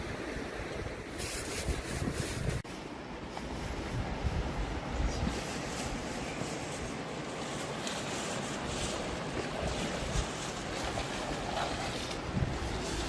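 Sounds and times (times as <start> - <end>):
river water rushing: 5.5 - 13.0.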